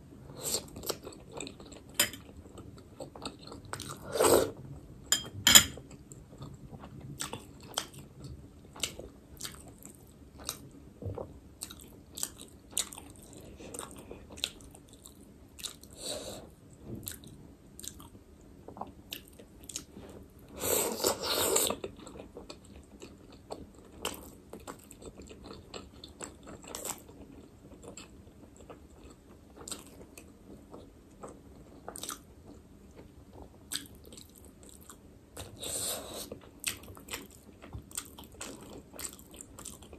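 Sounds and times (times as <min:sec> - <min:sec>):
biting and wet chewing: 0:05.8 - 0:15.9, 0:21.0 - 0:39.9.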